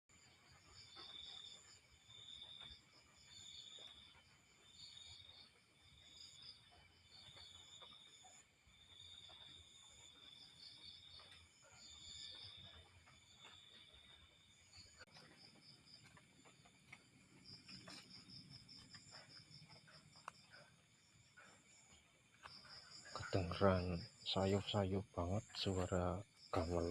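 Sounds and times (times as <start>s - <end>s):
insects chirping: 0.1s - 26.9s.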